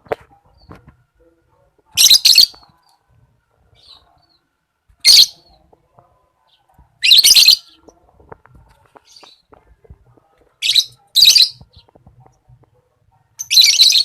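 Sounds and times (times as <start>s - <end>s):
lovebird chirping: 1.9s - 3.1s, 6.5s - 8.0s, 10.6s - 12.0s, 13.3s - 14.0s.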